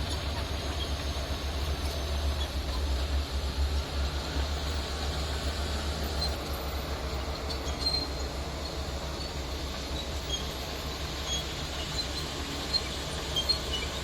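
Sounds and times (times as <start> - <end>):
heavy truck engine rumbling: 0.0 - 14.0.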